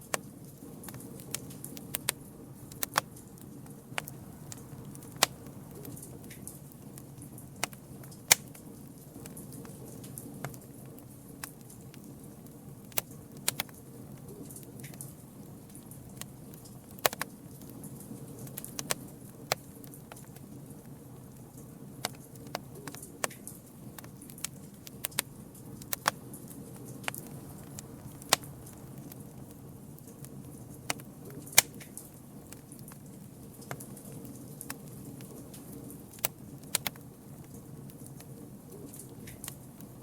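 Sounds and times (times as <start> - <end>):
burning wood pops and crackles: 0.0 - 40.0
low rush of flame: 23.7 - 40.0.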